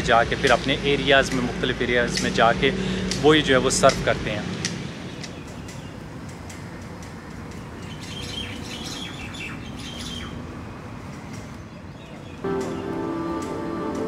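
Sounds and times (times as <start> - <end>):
birds chirping: 0.0 - 14.0
music: 12.4 - 14.0.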